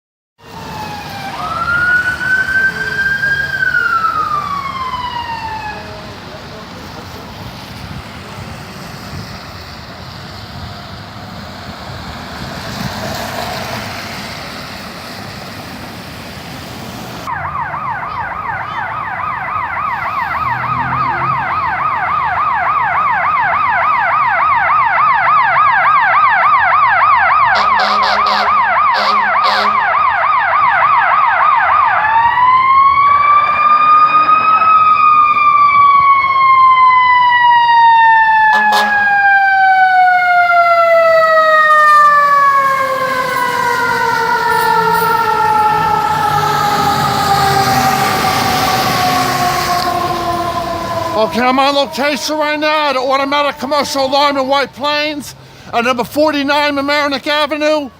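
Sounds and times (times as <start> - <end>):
fire engine siren: 0.4 - 57.9
road noise: 0.4 - 57.9
vehicle horn: 27.6 - 29.8, 38.5 - 39.1.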